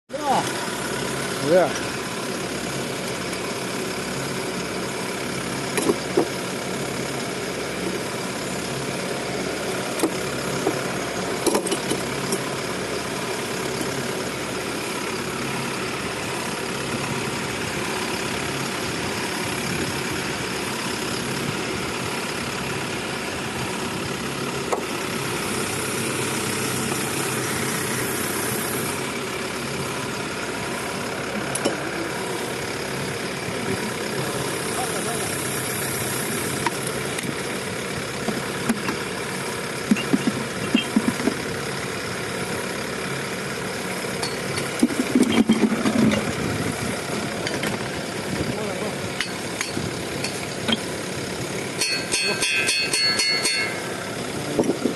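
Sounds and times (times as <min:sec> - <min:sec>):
drilling rig engine running: 0:00.1 - 0:54.9
sharp clicks and knocks: 0:05.7 - 0:06.3, 0:11.4 - 0:12.4, 0:39.9 - 0:41.4.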